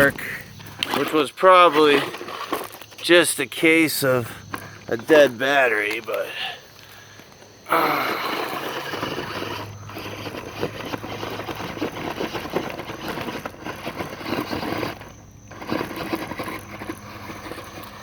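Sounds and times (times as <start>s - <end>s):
tire grinding in dirt and gravel: 0.0s - 18.0s
electric motor hum: 7.7s - 18.0s.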